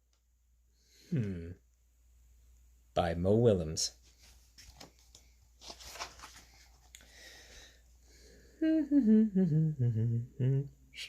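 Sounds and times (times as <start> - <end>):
man vocalizing descending notes: 1.1 - 1.6, 8.6 - 10.8.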